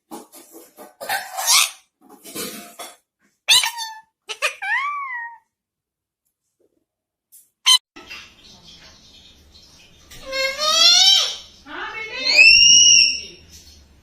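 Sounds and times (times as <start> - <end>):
parrot squawking: 1.0 - 1.8, 3.5 - 5.5, 10.2 - 13.4
parrot whistling: 12.2 - 13.4.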